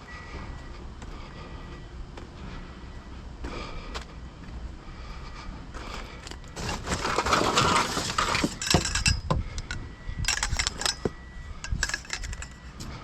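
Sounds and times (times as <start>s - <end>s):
metal scrap clattering: 6.6s - 9.7s, 10.3s - 12.7s.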